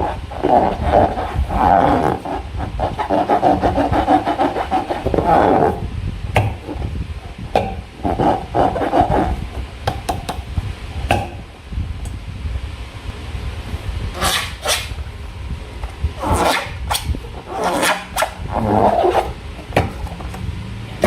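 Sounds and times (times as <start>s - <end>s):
slime squishing and rubbing: 0.0s - 5.9s, 7.9s - 9.7s.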